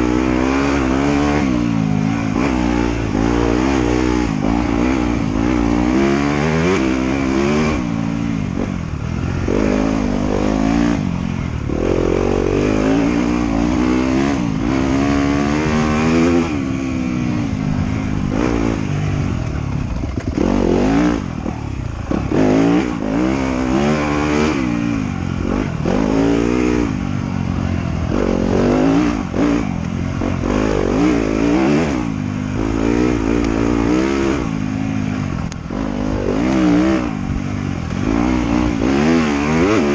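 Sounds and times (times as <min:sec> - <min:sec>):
motorcycle engine revving: 0:00.0 - 0:39.9
knocks and clatter: 0:19.4 - 0:20.7.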